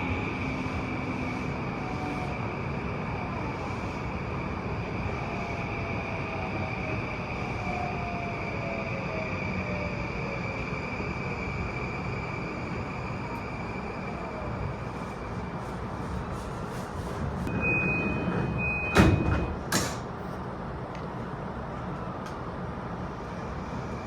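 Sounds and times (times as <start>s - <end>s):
train interior rumble: 0.0s - 24.0s
loud clunks of train wheels: 18.2s - 20.2s.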